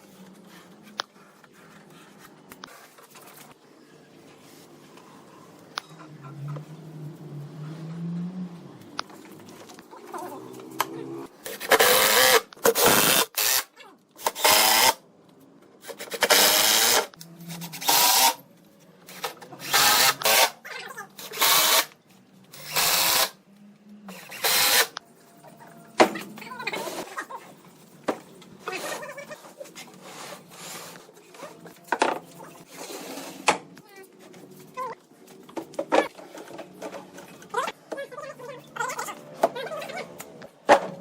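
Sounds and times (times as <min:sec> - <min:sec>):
power drill bursts: 0:19.6 - 0:20.5, 0:22.6 - 0:23.4, 0:24.2 - 0:25.0.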